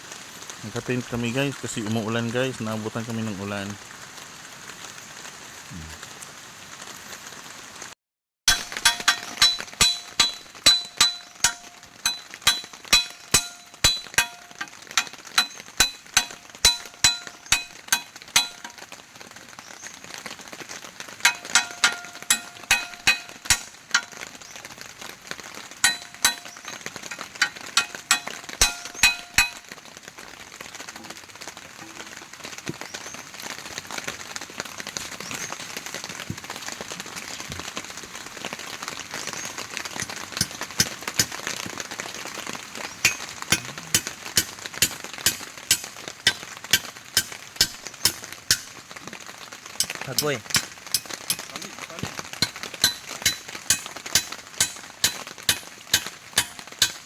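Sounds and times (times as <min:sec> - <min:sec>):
rain hiss: 0:00.0 - 0:57.0
utensil clinking against dish: 0:08.5 - 0:18.7, 0:21.3 - 0:24.1, 0:25.8 - 0:29.6, 0:43.0 - 0:48.7.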